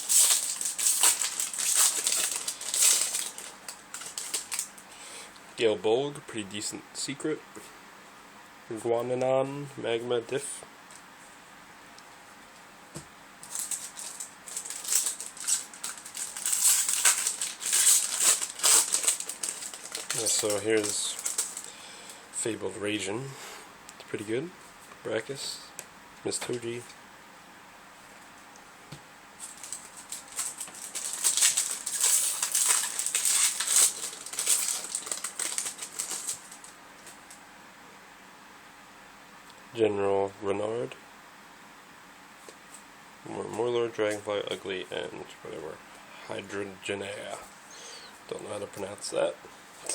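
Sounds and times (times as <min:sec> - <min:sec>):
trading cards rustling: 0:00.0 - 0:04.8, 0:13.4 - 0:22.2, 0:29.4 - 0:37.3
foil wrapper crinkling: 0:00.0 - 0:05.0, 0:13.4 - 0:22.2, 0:29.4 - 0:37.4.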